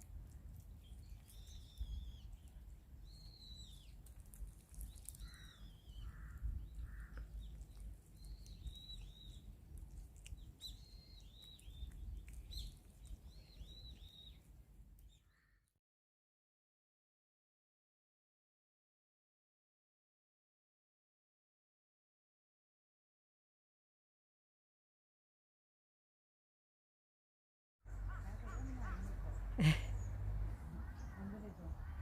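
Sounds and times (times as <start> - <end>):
small birds chirping: 0.0 - 15.7, 27.9 - 32.0
lower noisier bird calls: 0.6 - 15.7, 27.9 - 32.0.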